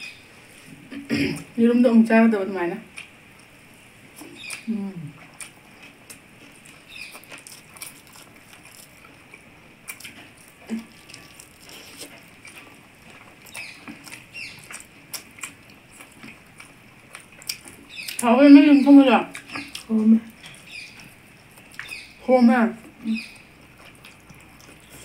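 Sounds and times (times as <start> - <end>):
wet chewing and lip-smacking: 2.9 - 18.3, 19.3 - 22.2, 22.8 - 25.0.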